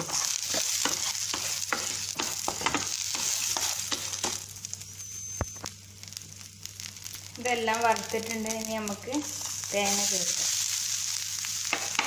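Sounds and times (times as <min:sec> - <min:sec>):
spoon clicking and scraping pan: 0:00.0 - 0:04.4
food sizzling in hot oil: 0:00.0 - 0:12.0.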